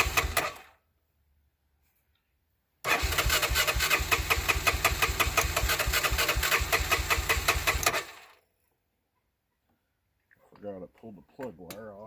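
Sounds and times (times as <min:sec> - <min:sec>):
electric starter cranking engine: 0:00.0 - 0:00.8, 0:02.8 - 0:08.4.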